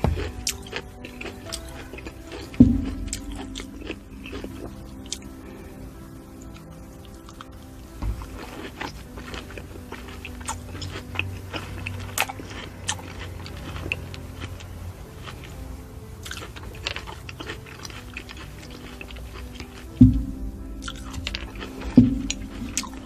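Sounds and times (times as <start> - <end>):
fruit chewing crunches: 0.0 - 5.6, 8.2 - 14.6, 16.2 - 23.0.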